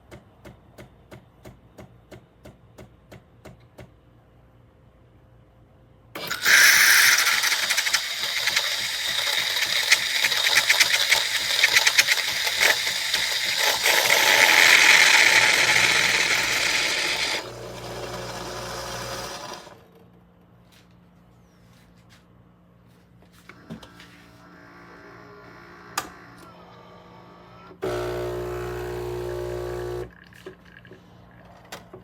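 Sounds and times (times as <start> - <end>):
coffee grinder grinding beans: 6.2 - 19.8, 27.8 - 31.0
coffee machine humming: 6.2 - 19.9, 23.5 - 31.5.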